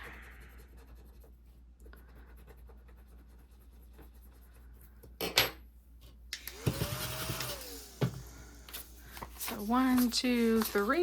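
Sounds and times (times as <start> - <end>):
scraping paper rustle: 8.7 - 11.0
paper money rustling: 8.8 - 11.0
paper crinkle: 9.0 - 11.0.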